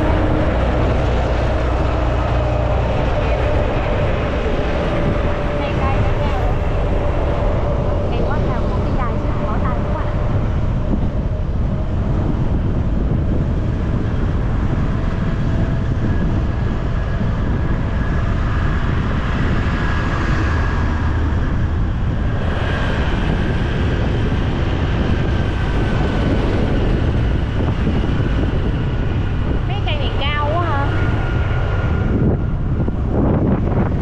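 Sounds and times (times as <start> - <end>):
motorcycle engine rumble: 0.0 - 19.4
road noise: 0.0 - 34.0.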